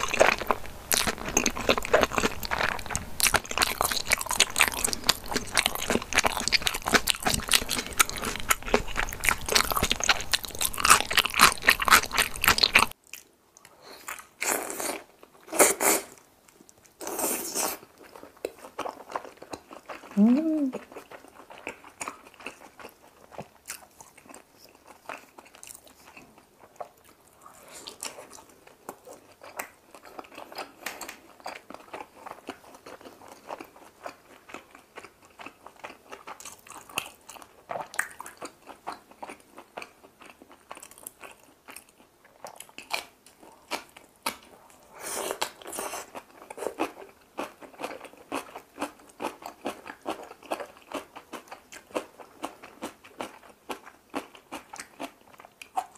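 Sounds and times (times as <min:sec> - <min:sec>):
crisp chewing crunches: 0:00.0 - 0:15.3.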